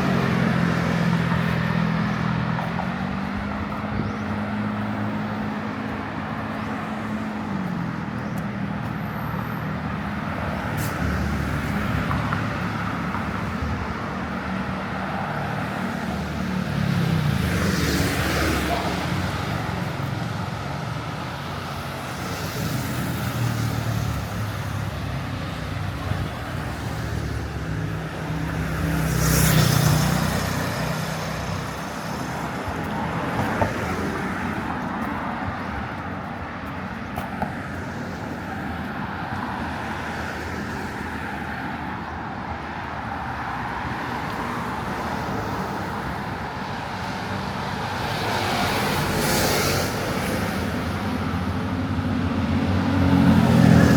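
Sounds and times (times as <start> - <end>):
vehicle passing by: 0.0 - 8.0, 22.2 - 41.7, 43.6 - 53.9
city street traffic rumble: 0.0 - 53.9.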